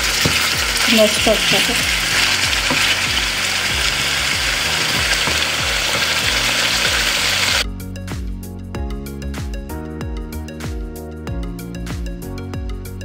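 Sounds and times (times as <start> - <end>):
wooden spatula scraping: 0.0 - 6.9
chicken sizzling in hot oil: 0.0 - 7.6
background music: 0.0 - 13.0.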